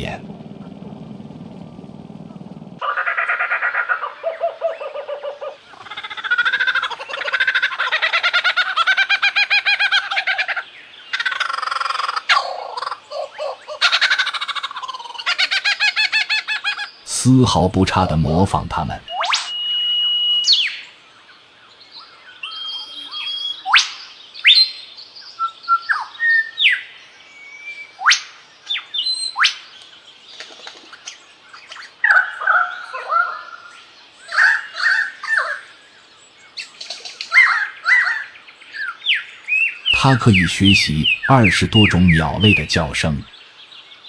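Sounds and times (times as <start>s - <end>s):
lyrebird mimicking bird calls: 40.1s - 43.3s.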